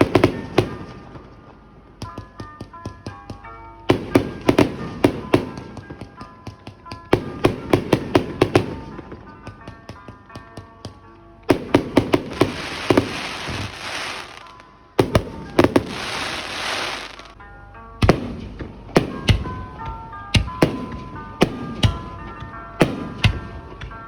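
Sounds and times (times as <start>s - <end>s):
fireworks booms: 0.0s - 1.2s, 11.5s - 17.4s
fireworks bangs: 0.0s - 1.5s, 3.9s - 10.3s, 11.5s - 17.4s
fireworks crackling hiss: 12.2s - 14.6s, 15.3s - 17.4s.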